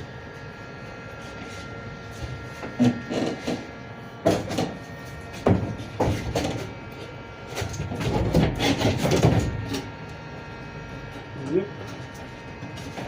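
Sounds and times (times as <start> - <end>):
scraping and rubbing: 1.2 - 3.7, 4.4 - 9.9
sharp knocks on panels: 4.2 - 6.7, 7.6 - 9.8.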